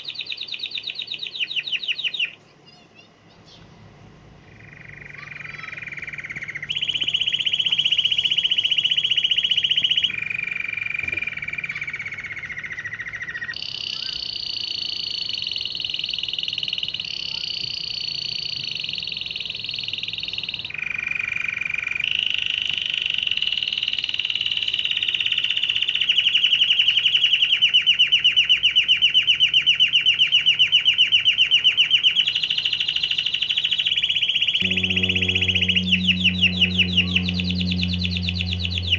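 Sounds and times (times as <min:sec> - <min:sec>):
canary singing trills: 0:34.6 - 0:38.9.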